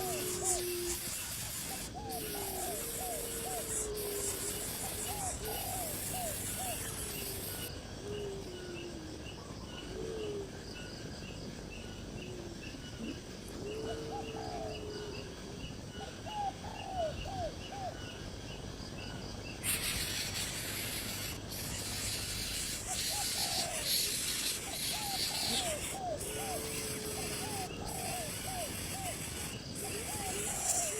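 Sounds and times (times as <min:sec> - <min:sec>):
loud steady hiss: 0:00.0 - 0:07.7, 0:19.6 - 0:30.9.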